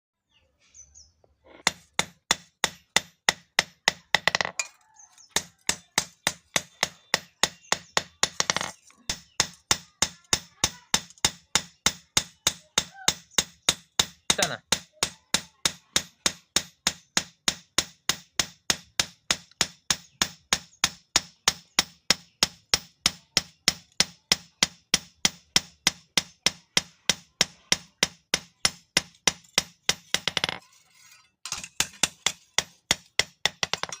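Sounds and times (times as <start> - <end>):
hammer beating metal on anvil: 5.4 - 30.6.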